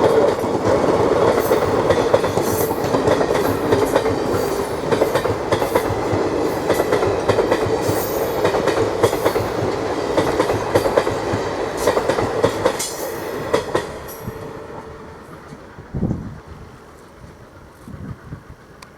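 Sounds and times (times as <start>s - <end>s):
train wheels clattering over joints: 0.0s - 14.3s
train rumble: 0.0s - 18.9s.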